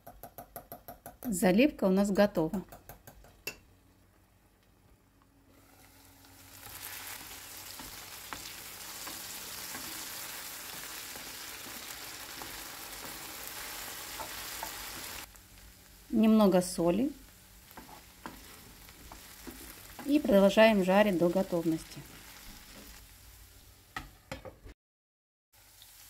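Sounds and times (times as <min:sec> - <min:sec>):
potatoes sizzling in a frying pan: 0:05.6 - 0:24.3, 0:25.6 - 0:26.0.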